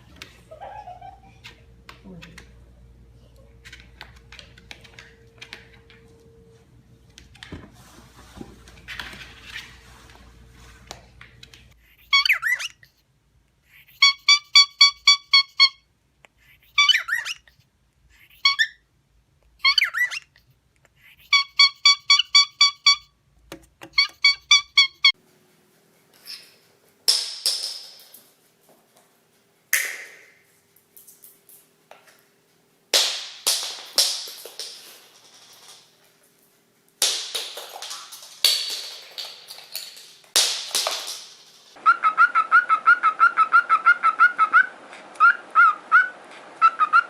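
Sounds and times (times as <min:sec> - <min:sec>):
parrot screech: 0:12.0 - 0:12.8, 0:16.8 - 0:17.5
parrot whistling: 0:12.1 - 0:12.8, 0:14.0 - 0:15.8, 0:19.6 - 0:20.3, 0:21.3 - 0:23.1, 0:24.0 - 0:25.2, 0:41.8 - 0:47.0.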